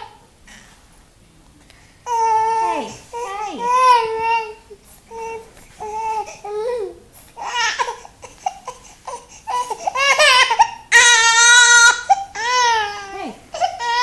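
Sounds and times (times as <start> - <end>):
baby babbling and fussing: 2.1 - 10.8
baby crying loudly: 9.5 - 14.0.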